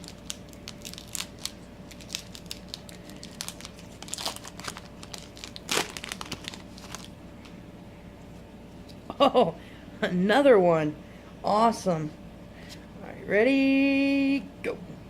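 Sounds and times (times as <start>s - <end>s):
plastic packaging crackling: 0.0s - 7.2s.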